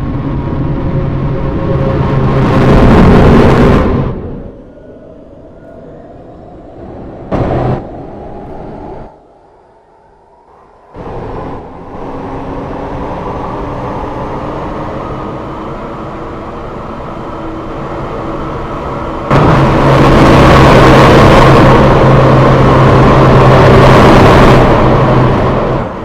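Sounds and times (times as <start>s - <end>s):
train running on track: 0.0s - 26.0s
faint tone: 4.1s - 12.4s
loud bang: 7.2s - 8.7s, 19.3s - 25.6s.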